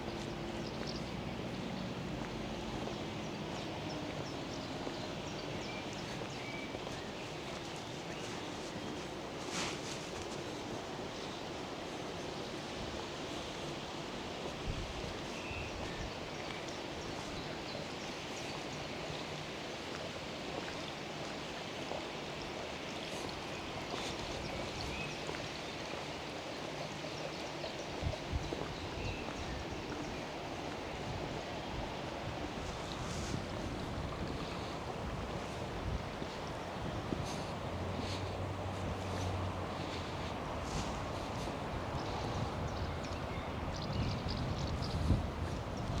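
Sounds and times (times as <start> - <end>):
steady rushing outdoor noise: 30.4 - 46.0.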